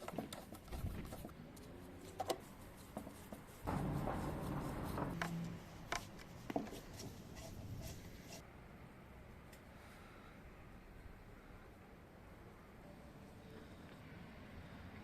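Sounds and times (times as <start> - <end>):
rough rubbing or scraping: 0.0 - 8.4.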